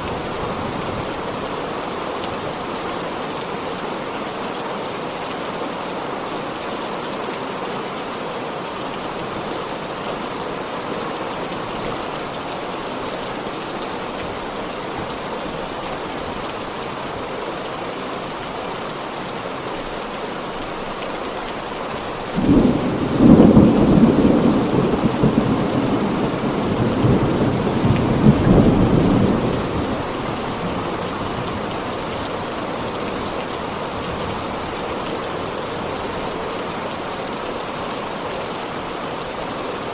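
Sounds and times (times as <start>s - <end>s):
heavy steady rain: 0.0s - 39.9s
thunderclap rumbling: 22.4s - 31.5s.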